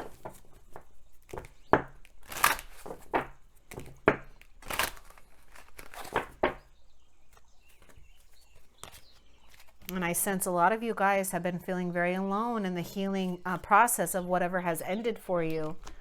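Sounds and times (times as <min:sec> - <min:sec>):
cards rustling and sliding on table: 0:02.2 - 0:04.0, 0:04.6 - 0:06.4, 0:07.7 - 0:09.9.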